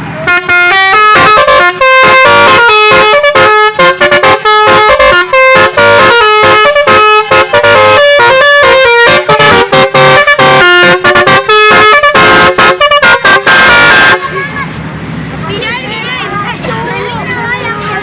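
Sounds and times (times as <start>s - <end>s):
musical air horn playing tune: 0.1s - 14.4s.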